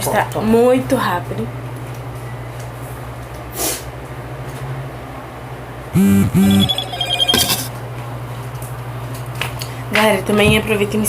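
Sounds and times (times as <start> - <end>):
higher beeps: 6.0 - 7.7
phone alert tones: 6.0 - 7.7.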